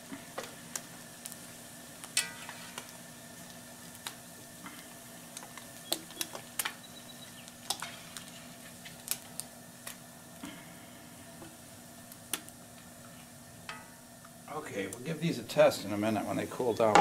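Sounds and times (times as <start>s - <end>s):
fish frying in hot oil: 0.0s - 15.3s.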